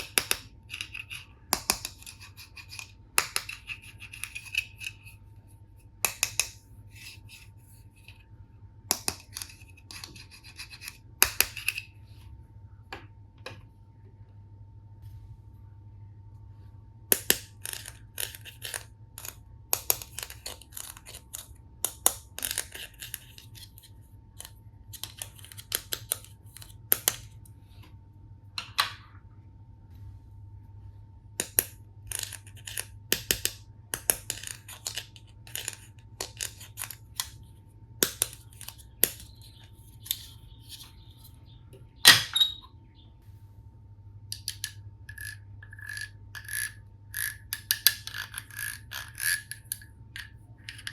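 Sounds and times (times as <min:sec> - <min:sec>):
plastic toy pieces clicking: 0:17.1 - 0:23.6, 0:44.3 - 0:50.9.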